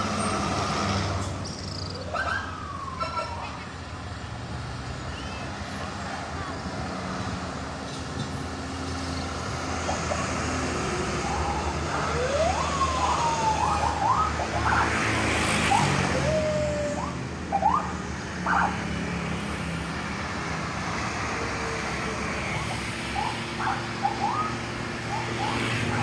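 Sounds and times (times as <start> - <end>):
road traffic: 0.0 - 26.0
siren whoops: 2.0 - 3.7, 10.9 - 18.8, 21.1 - 26.0.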